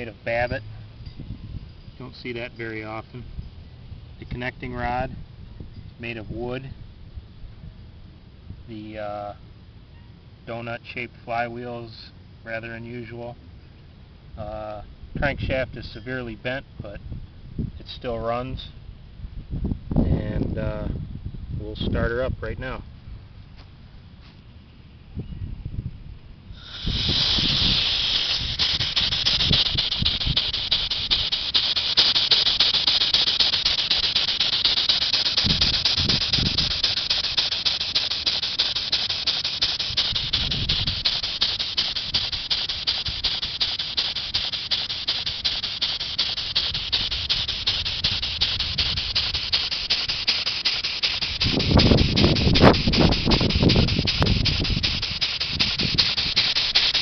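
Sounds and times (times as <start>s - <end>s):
steam engine hissing: 26.6s - 57.0s.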